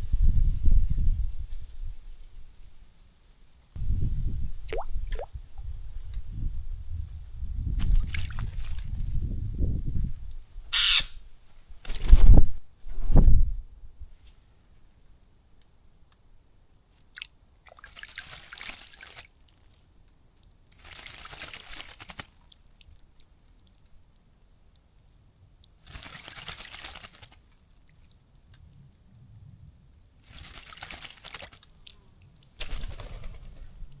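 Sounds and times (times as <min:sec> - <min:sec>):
bird wings fluttering in water: 0:07.8 - 0:09.2, 0:10.8 - 0:11.1, 0:17.9 - 0:19.4, 0:20.8 - 0:22.5, 0:25.8 - 0:27.6, 0:30.2 - 0:32.0, 0:32.6 - 0:34.0
bird splashing in water: 0:10.8 - 0:11.2, 0:30.3 - 0:31.7.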